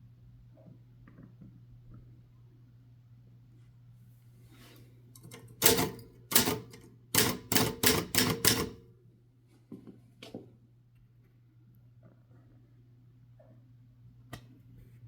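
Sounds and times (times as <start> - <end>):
typewriter key strikes: 5.3 - 8.8.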